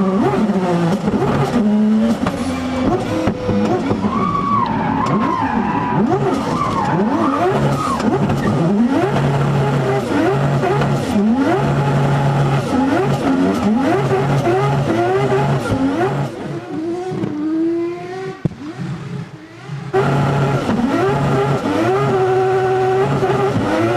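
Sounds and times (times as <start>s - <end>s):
rotary engine revving: 0.0s - 23.9s.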